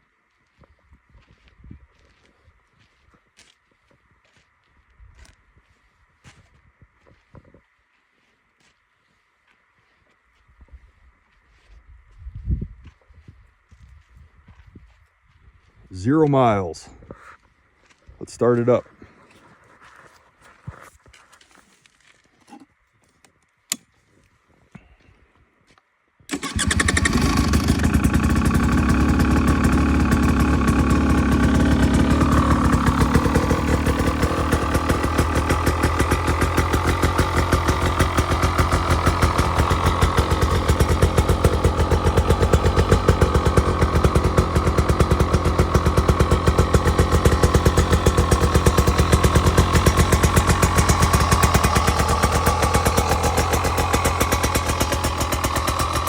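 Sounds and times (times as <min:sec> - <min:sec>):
two-stroke engine starting and idling: 0:26.3 - 0:56.0.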